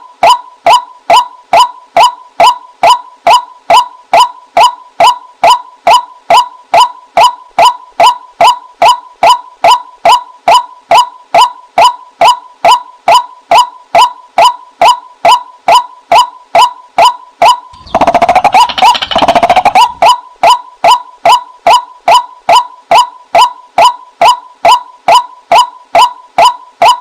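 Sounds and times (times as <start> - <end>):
rapid bird chattering: 17.8 - 20.1
waterhen kwak calls: 17.8 - 20.2.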